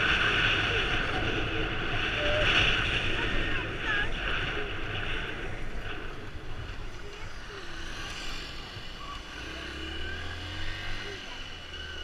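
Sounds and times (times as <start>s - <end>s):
wind noise on microphone: 0.0s - 7.4s
vehicle engine rumbling: 0.0s - 12.0s.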